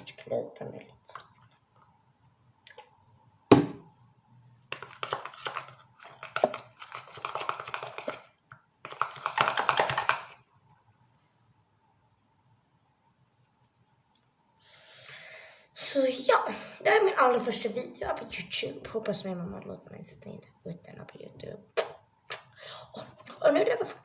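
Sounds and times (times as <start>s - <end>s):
knock: 3.5s - 3.8s.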